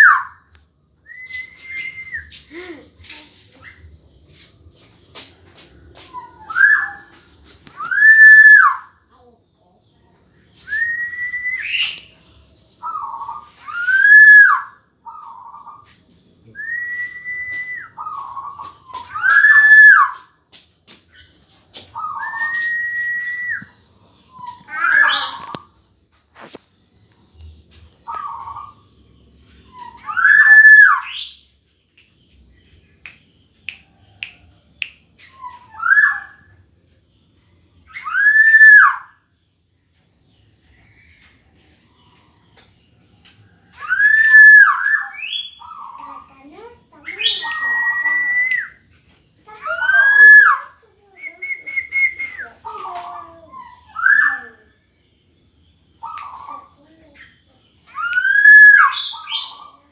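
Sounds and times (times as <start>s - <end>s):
oriole fluty whistled song: 0.0s - 0.4s, 1.0s - 3.8s, 6.0s - 8.9s, 10.6s - 14.8s, 16.5s - 20.3s, 22.0s - 25.6s, 29.7s - 31.4s, 33.7s - 36.5s, 37.9s - 39.1s, 43.7s - 45.9s, 47.0s - 48.9s, 49.6s - 54.6s, 57.9s - 59.8s.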